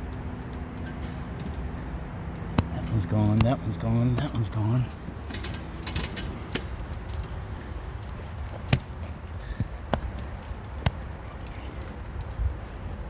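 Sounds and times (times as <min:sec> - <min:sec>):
hatchet knocking on roof shingles: 0:02.5 - 0:03.6.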